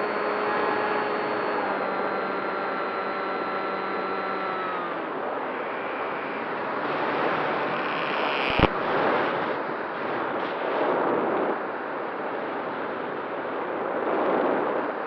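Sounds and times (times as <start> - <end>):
electric motor whine: 0.0 - 9.6
wind noise: 0.0 - 15.0.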